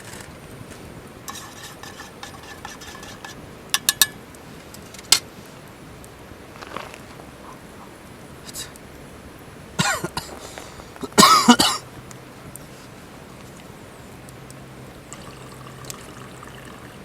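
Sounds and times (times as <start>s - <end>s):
utensils stirring and scraping: 1.3s - 4.2s.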